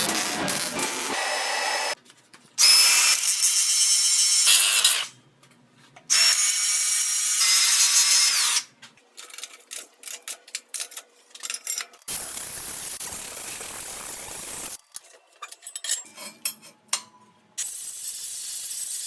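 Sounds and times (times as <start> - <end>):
angle grinder whining: 0.0 - 2.0.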